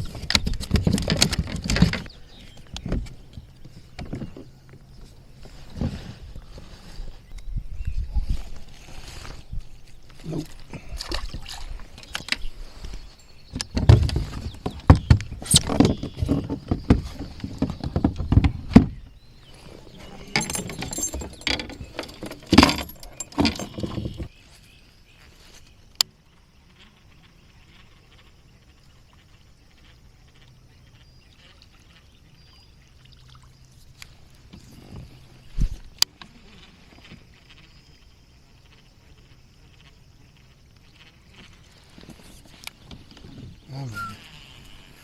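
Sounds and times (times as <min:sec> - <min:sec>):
water splashing: 0:10.2 - 0:12.1
knocking and rattling: 0:13.5 - 0:19.0, 0:19.9 - 0:24.3.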